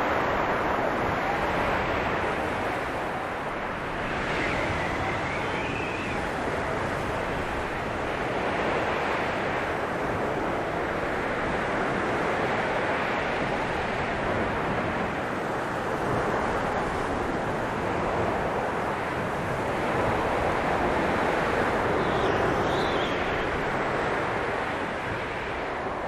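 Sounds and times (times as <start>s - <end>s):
blizzard wind blowing: 0.0s - 26.0s.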